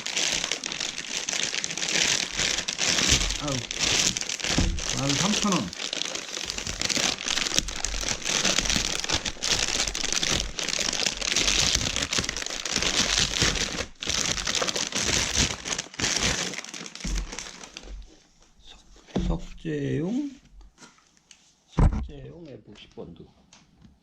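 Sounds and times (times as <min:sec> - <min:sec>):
packaging crinkling and tearing: 0:00.0 - 0:18.2.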